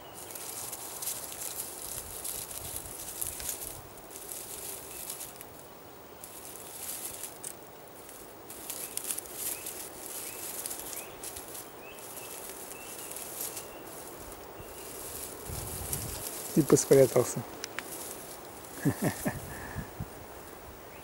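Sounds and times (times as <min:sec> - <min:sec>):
hedgehog rustling through leaves: 0:00.0 - 0:21.0
bird chirping faintly: 0:04.2 - 0:18.2.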